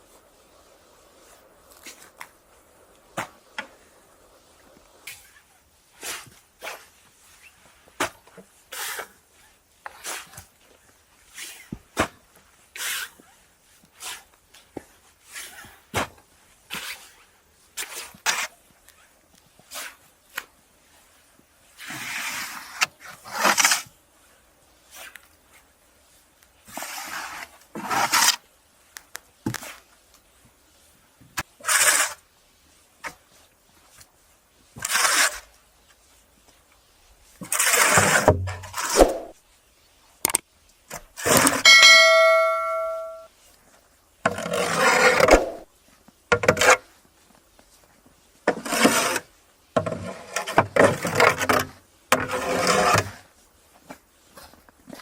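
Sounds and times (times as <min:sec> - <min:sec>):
scraping strokes: 0:37.4 - 0:39.4
ringing metallic clang: 0:41.7 - 0:43.3.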